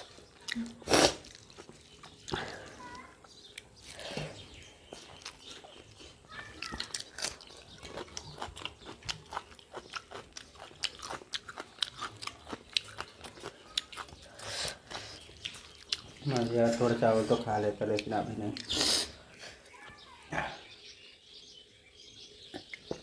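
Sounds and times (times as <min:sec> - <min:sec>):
chewing and lip-smacking: 0:00.0 - 0:17.0, 0:17.8 - 0:19.0.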